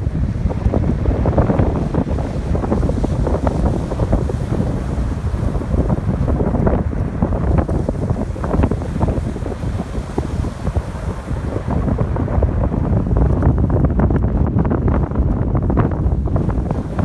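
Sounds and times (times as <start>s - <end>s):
ocean waves breaking: 0.0s - 14.0s, 15.7s - 17.0s
wind buffeting microphone: 0.0s - 17.0s.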